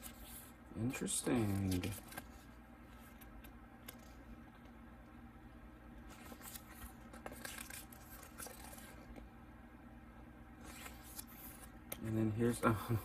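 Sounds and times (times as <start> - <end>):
paper and plastic packaging rustling: 0.0 - 2.6, 6.1 - 9.2
steady low hum: 0.0 - 13.0.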